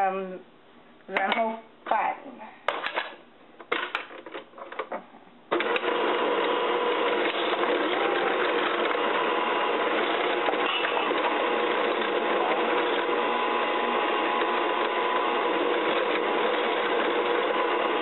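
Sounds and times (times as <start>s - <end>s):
electric mixer running: 5.5s - 18.0s.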